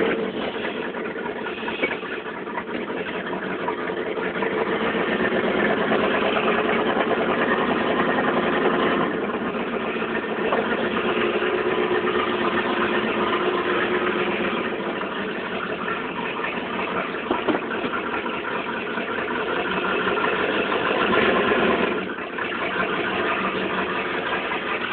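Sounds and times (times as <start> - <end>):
pickup truck engine running: 0.0 - 24.9.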